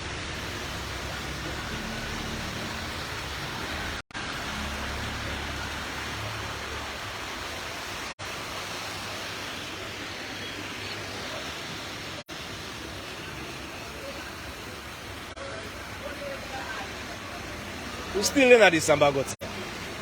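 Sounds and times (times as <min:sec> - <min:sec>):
rain: 0:00.0 - 0:20.0
traffic: 0:00.0 - 0:20.0
water rushing: 0:00.0 - 0:20.0.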